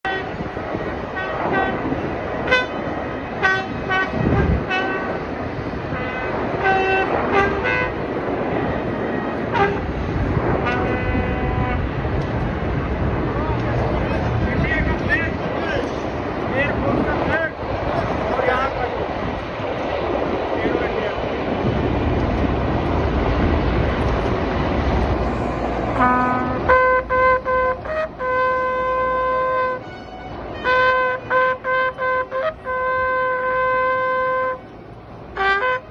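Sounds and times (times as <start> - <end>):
horns tooting: 0.0 - 5.3, 5.9 - 8.0, 9.4 - 12.0, 25.9 - 35.9.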